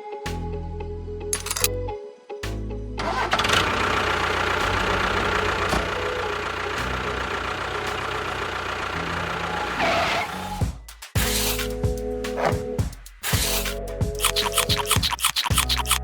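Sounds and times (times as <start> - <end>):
small engine idling: 3.0 - 9.8.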